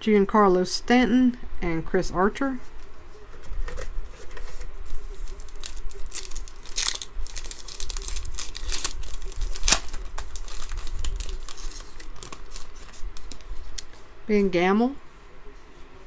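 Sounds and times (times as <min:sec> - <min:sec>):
wrapper tearing and crinkling: 0:05.0 - 0:13.9.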